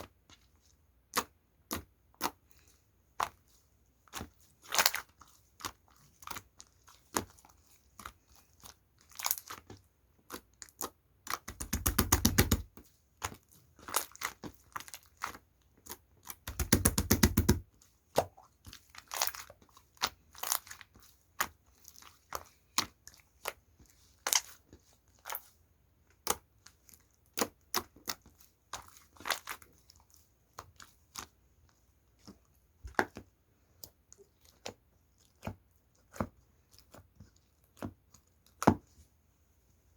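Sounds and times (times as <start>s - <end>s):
slime squishing and popping: 9.1s - 20.8s.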